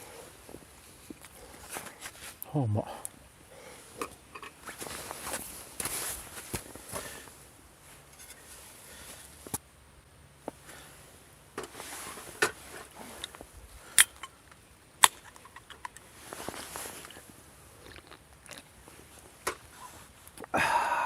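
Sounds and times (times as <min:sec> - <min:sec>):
person chewing: 0:16.7 - 0:19.3.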